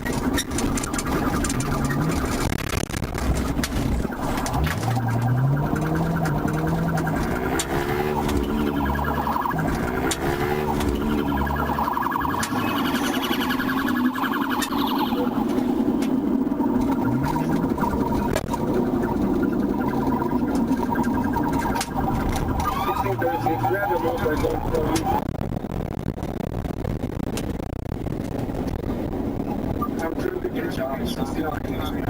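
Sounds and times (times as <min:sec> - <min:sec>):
police siren wailing: 0:00.0 - 0:25.2
vehicle noise: 0:00.0 - 0:32.0.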